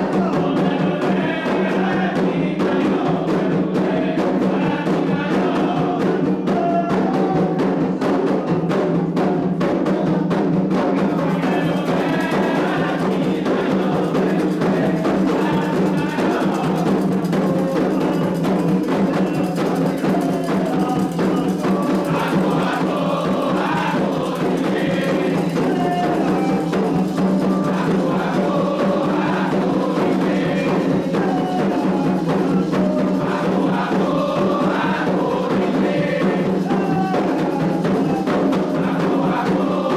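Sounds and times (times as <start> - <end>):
drums and percussion: 0.0 - 39.9
group singing: 0.0 - 39.9.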